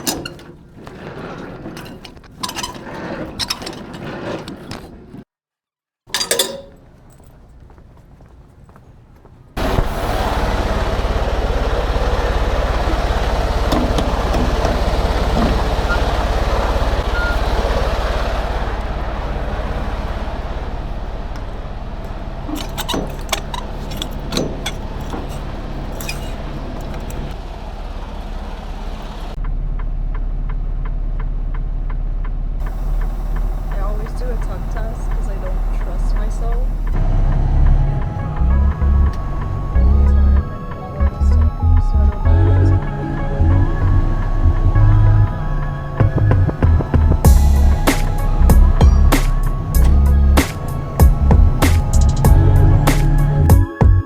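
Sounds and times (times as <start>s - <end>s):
road noise: 0.0s - 5.3s, 6.1s - 54.0s
diesel truck engine running: 6.1s - 54.0s
sharp clicks and knocks: 12.8s - 17.7s, 19.9s - 27.4s.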